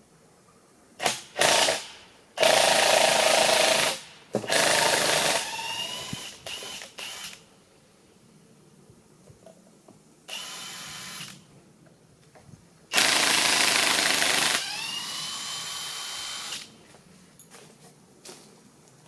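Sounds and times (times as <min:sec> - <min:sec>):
power tool motor whining: 0:13.0 - 0:16.7.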